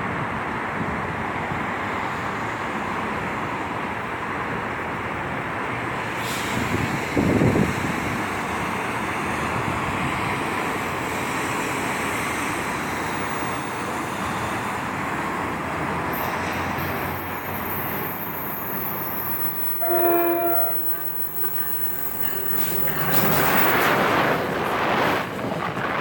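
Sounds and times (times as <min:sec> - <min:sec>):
train rumbling past: 0:00.0 - 0:26.0
train horn blast: 0:19.8 - 0:23.6.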